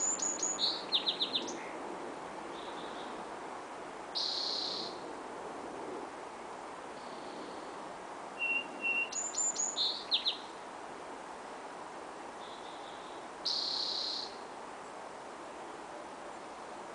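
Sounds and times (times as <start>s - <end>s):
songbirds singing: 0.0s - 1.8s, 2.5s - 3.3s, 4.1s - 5.1s, 7.0s - 7.8s, 8.4s - 10.6s, 12.4s - 14.5s
steady background hiss: 0.0s - 16.9s.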